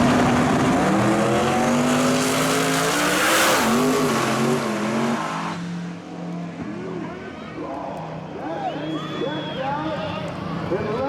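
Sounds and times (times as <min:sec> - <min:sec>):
race car accelerating: 0:00.0 - 0:07.1.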